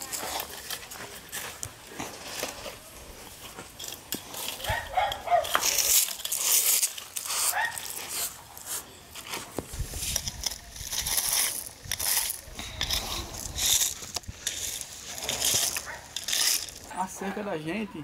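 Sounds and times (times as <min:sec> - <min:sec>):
scraping rustle: 0:00.0 - 0:17.4
dog barking: 0:04.7 - 0:05.6, 0:07.5 - 0:07.8.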